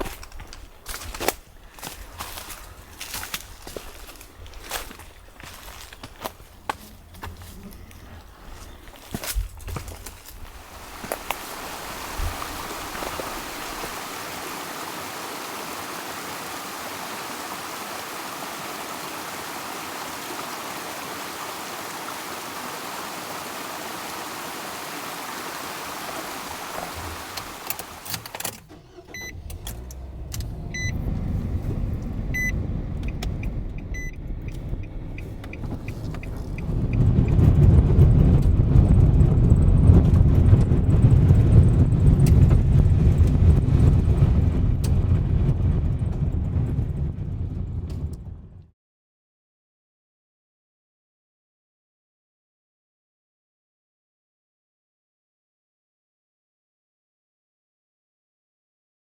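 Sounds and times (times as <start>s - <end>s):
car engine rumble: 0.0s - 48.7s
steady rushing noise: 9.8s - 28.0s
car warning chime beeping: 28.9s - 29.6s, 30.7s - 31.1s, 32.3s - 37.0s.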